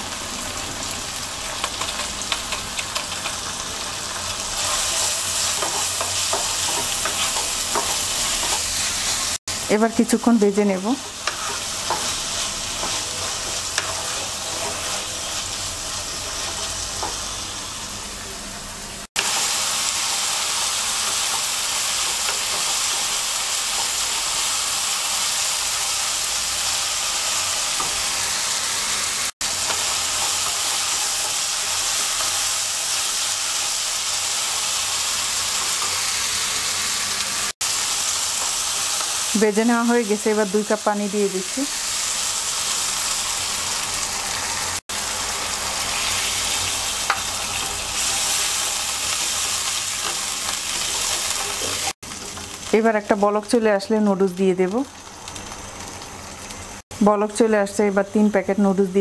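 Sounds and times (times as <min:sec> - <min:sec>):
food sizzling in a pan: 0:00.0 - 0:59.0
wooden spatula scraping: 0:11.2 - 0:15.3.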